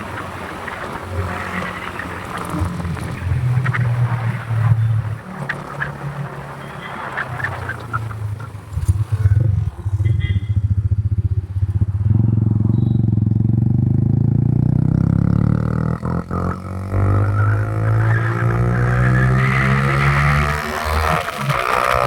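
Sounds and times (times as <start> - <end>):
motorcycle engine running: 8.4 - 22.0.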